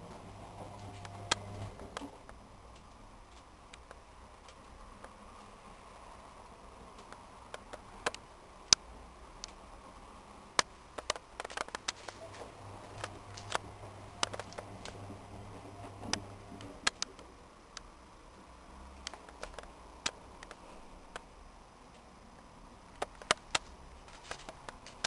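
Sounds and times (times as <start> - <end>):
faint low hum: 0.0 - 25.0
sharp clicks and light knocks: 0.6 - 5.2, 6.9 - 9.6, 10.6 - 15.1, 15.9 - 17.9, 19.0 - 21.3, 21.9 - 25.0.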